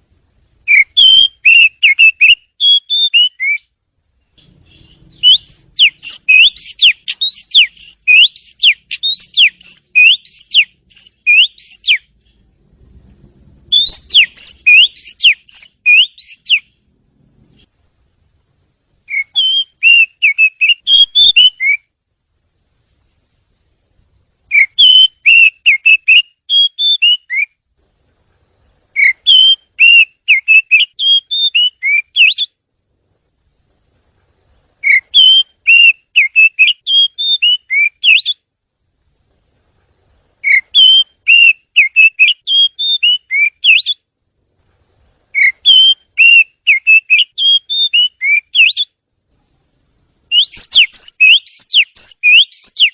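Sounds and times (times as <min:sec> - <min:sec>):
bird singing whistled notes: 0:00.6 - 0:12.4, 0:13.6 - 0:16.8, 0:19.0 - 0:21.9, 0:24.5 - 0:27.6, 0:28.9 - 0:32.6, 0:34.8 - 0:38.5, 0:40.4 - 0:44.1, 0:45.3 - 0:49.0, 0:50.3 - 0:52.9.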